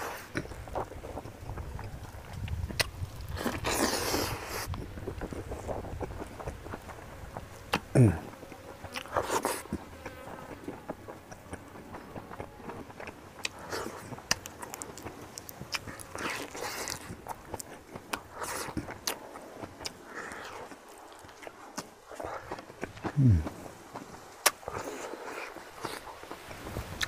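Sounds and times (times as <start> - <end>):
food crunching: 0.0 - 26.6
person chewing food: 0.0 - 26.6.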